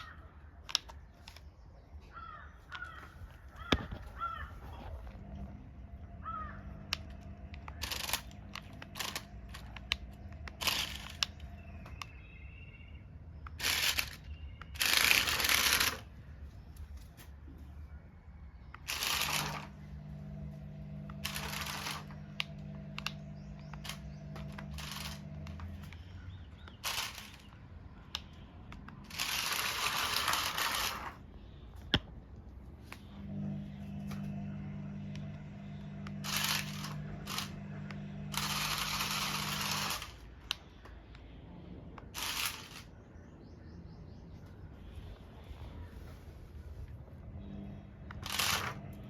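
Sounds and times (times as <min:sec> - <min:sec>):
sharp clicks: 0:00.0 - 0:01.6, 0:02.7 - 0:12.4, 0:13.4 - 0:16.1, 0:18.7 - 0:31.2, 0:31.8 - 0:41.3
rustling and scraping: 0:02.6 - 0:05.6
toy electric motor whirring: 0:03.7 - 0:12.3, 0:13.4 - 0:16.2, 0:18.7 - 0:31.3, 0:33.1 - 0:40.6, 0:42.1 - 0:42.9, 0:47.4 - 0:49.0.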